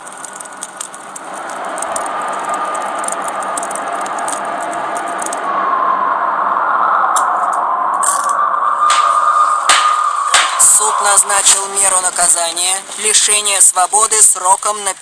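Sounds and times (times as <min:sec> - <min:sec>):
hiss: 0:00.0 - 0:05.6
crackling and popping: 0:00.0 - 0:05.8, 0:07.0 - 0:15.0
sustained tone: 0:00.0 - 0:13.9.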